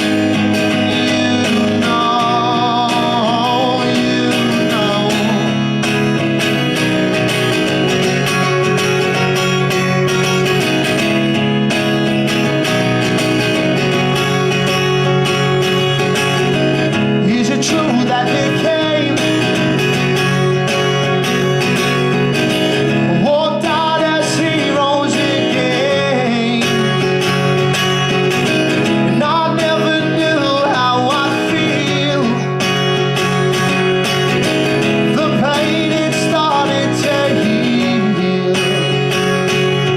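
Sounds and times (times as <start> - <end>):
man singing: 0.0 - 6.2, 16.4 - 20.6, 22.7 - 39.9
acoustic guitar strumming: 0.0 - 39.9.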